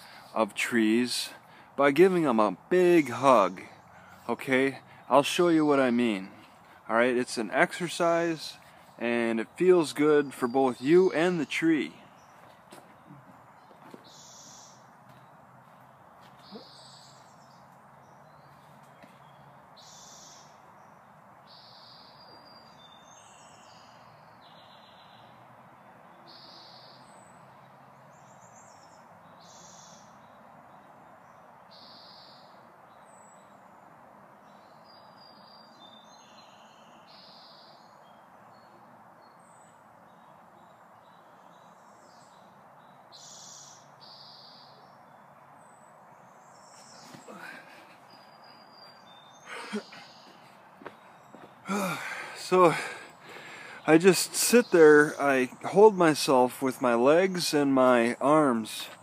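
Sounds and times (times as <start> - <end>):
faint background hiss: 0.0 - 59.0
small birds chirping: 0.0 - 59.0.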